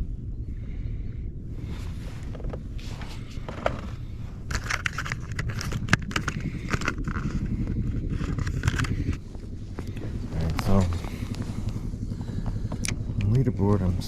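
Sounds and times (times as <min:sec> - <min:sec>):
wind rumbling on microphone: 0:00.0 - 0:14.0
scrapes and clicks: 0:02.2 - 0:11.8.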